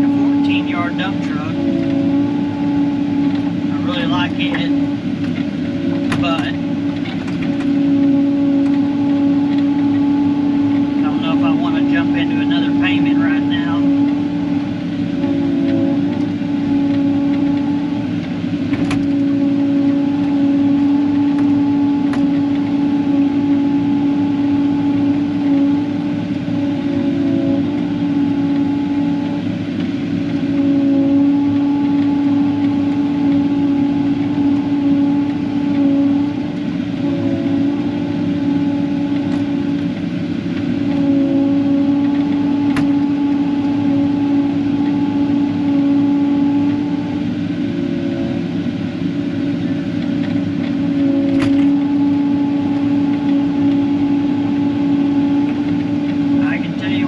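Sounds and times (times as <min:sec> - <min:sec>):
engine humming steadily: 0:00.0 - 0:57.0.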